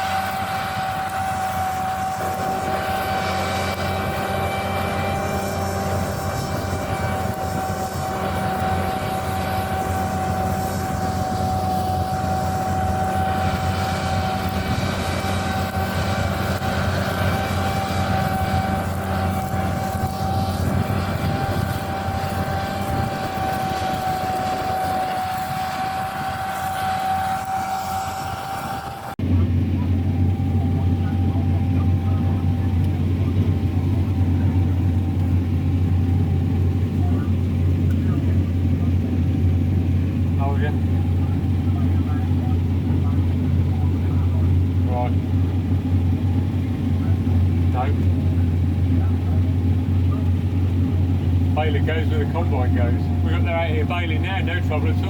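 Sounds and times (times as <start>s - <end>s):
combine harvester engine hum: 0.0s - 55.0s
high steady whine: 0.0s - 55.0s.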